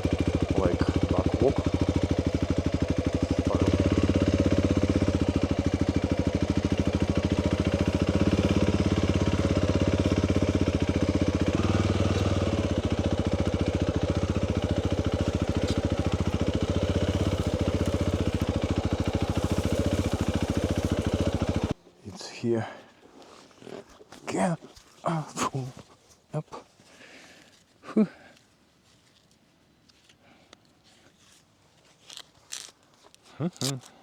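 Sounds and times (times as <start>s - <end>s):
motorcycle engine at low revs: 0.0s - 21.8s.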